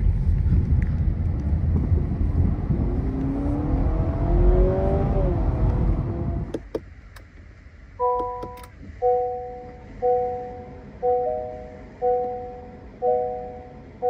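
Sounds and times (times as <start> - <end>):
car engine low rumble: 0.0 - 14.0
multi-tone whine rising in pitch: 1.8 - 6.5.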